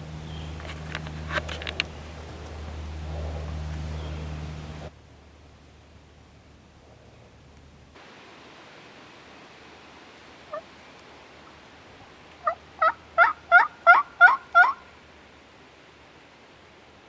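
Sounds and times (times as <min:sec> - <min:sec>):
turkey yelping: 0:10.5 - 0:10.7, 0:12.4 - 0:15.0.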